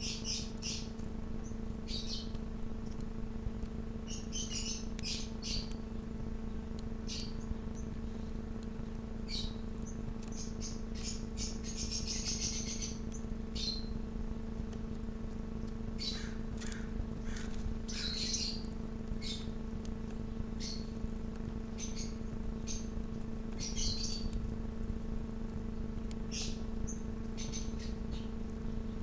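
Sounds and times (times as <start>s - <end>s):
small songbirds chirping: 0.0s - 3.0s, 4.0s - 8.4s, 9.2s - 14.0s, 15.5s - 19.6s, 20.3s - 21.0s, 21.7s - 24.5s, 26.2s - 29.0s
steady low hum: 0.0s - 29.0s.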